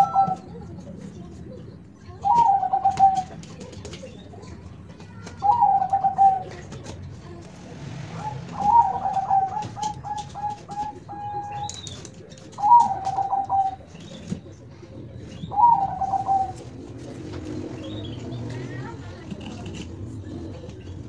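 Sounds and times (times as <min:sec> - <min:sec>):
dove cooing: 0:00.0 - 0:00.6, 0:02.2 - 0:03.7, 0:05.4 - 0:07.0, 0:08.1 - 0:18.5.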